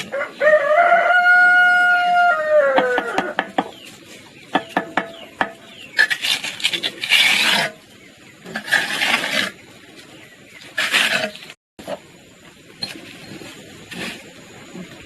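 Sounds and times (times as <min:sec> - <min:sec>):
rasping scraping strokes: 0:05.9 - 0:09.6, 0:10.6 - 0:11.6.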